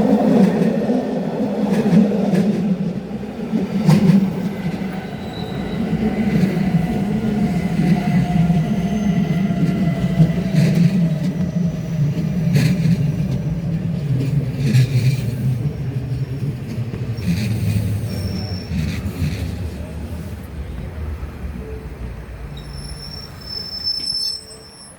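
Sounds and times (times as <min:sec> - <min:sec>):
train wheels rumbling on rails: 0:00.0 - 0:24.9
faint wheel squeal: 0:17.2 - 0:19.6, 0:22.5 - 0:24.9.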